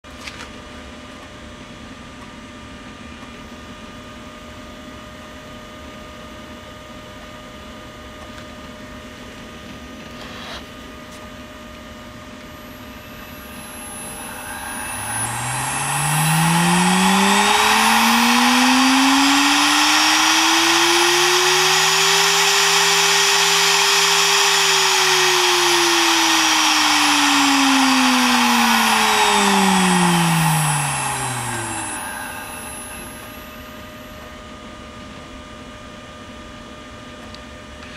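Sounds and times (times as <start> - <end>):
spindle whine: 12.3 - 34.4
rush of cooling air: 13.3 - 33.4.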